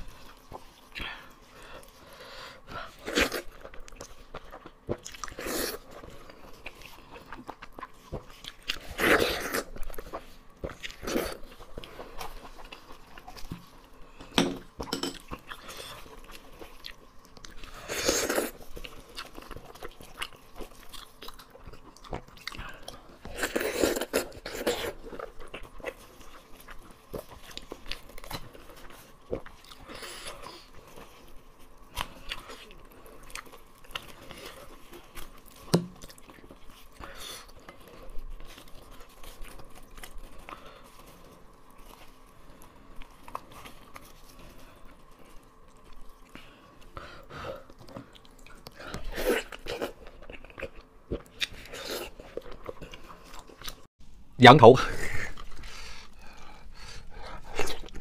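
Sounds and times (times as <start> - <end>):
wet chewing and biting: 2.9 - 14.0, 14.8 - 53.9, 55.3 - 58.0.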